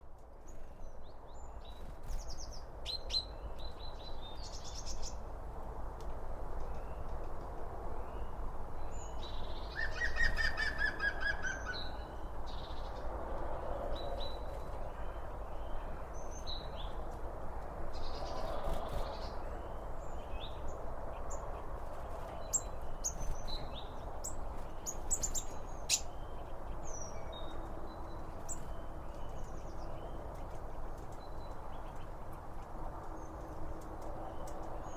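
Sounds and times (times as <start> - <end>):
songbirds singing and chirping: 0.1 - 34.9.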